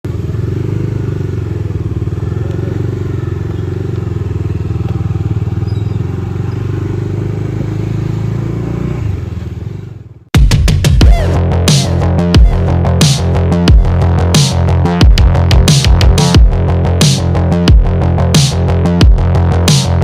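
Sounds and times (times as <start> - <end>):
motorcycle engine running: 0.0 - 20.0
loud electronic music: 10.4 - 20.0.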